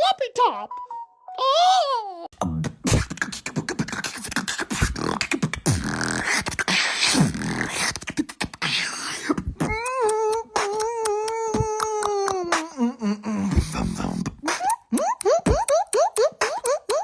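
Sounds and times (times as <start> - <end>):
person making mouth clicks: 9.2 - 17.0
comic moaning and grunts: 9.6 - 14.4.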